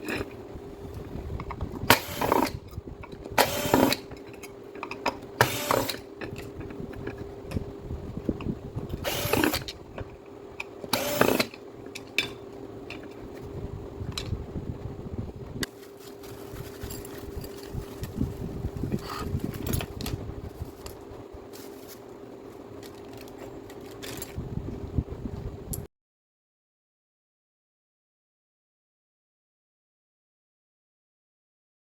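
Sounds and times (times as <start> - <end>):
tool parts clattering and scraping: 0.0 - 0.4, 1.3 - 7.6, 8.9 - 13.5, 15.6 - 24.4
steady hum: 0.0 - 25.9.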